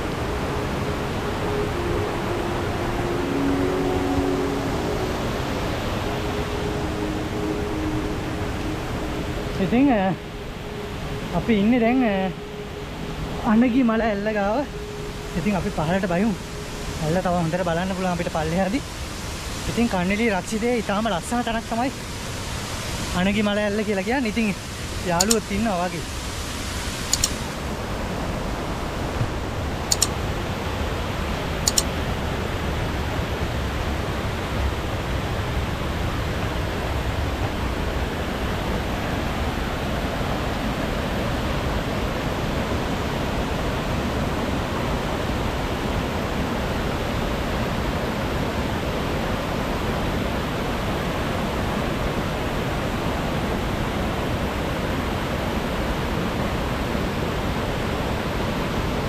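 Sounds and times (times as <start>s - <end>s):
waterfall roaring: 0.0s - 59.0s
high clicks: 25.2s - 25.5s, 27.1s - 27.5s, 29.9s - 30.2s, 31.7s - 31.9s.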